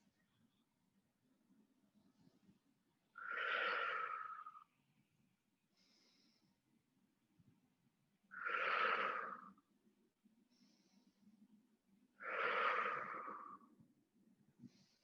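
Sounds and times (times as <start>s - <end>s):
slow breathing with slight whistle: 3.2s - 4.7s, 8.4s - 9.6s, 12.2s - 13.6s.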